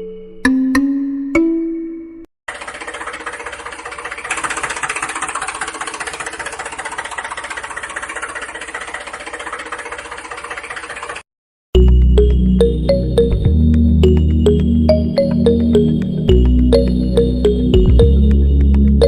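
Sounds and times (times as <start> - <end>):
small motor rattling: 2.5 - 11.3.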